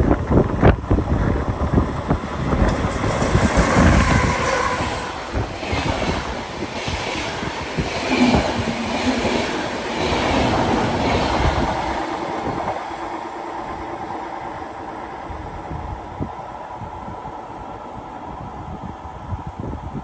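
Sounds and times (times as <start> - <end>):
train rumble: 0.0 - 20.0
train wheels knocking over rail joints: 1.3 - 9.3.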